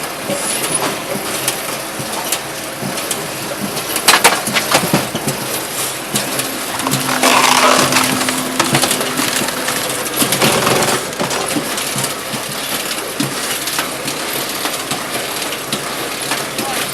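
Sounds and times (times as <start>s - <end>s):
wood cracking under splitter: 4.0s - 5.1s
split wood clattering: 4.1s - 5.0s
machine hum: 4.6s - 13.9s.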